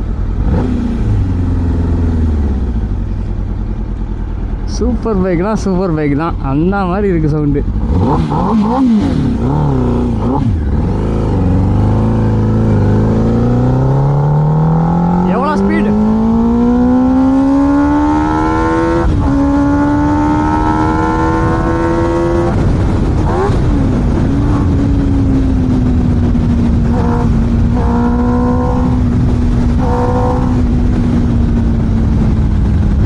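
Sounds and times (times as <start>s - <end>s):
motorcycle engine accelerating: 0.0s - 33.0s
steady rushing noise: 0.0s - 33.0s.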